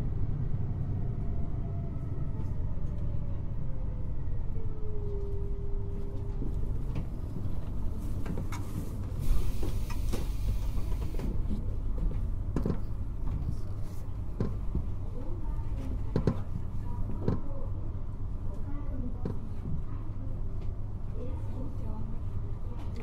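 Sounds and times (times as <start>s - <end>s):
train wheels rumbling on rail: 5.0s - 17.8s.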